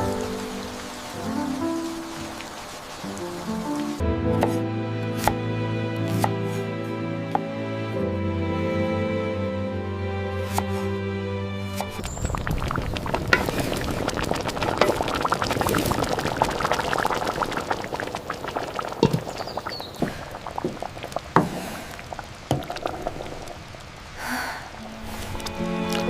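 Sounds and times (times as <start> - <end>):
liquid bubbling and popping: 11.8 - 26.0.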